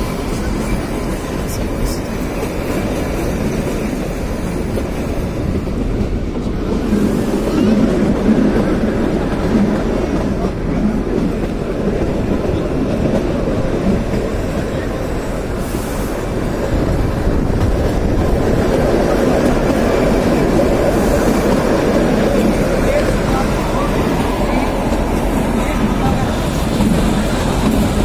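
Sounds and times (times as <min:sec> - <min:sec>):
train wheels rumbling: 0:00.0 - 0:28.0.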